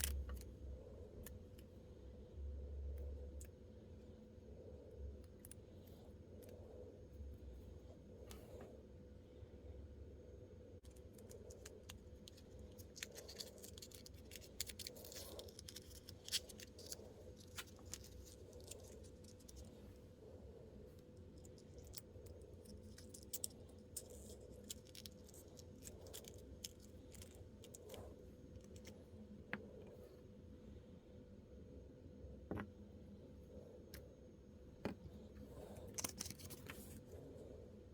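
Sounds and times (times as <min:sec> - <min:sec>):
faint steady hum: 0:00.0 - 0:37.9
plastic miniatures clicking and rustling: 0:10.8 - 0:19.7, 0:21.4 - 0:29.0, 0:35.6 - 0:37.0.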